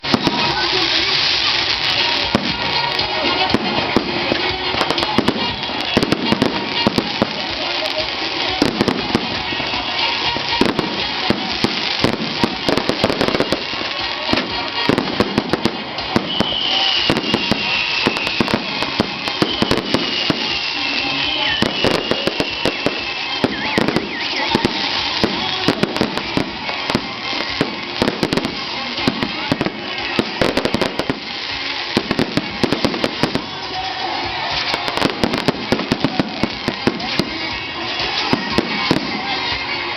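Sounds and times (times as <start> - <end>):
firecrackers crackling and banging: 0.0 - 39.9
thin high falling whistle: 16.2 - 18.7.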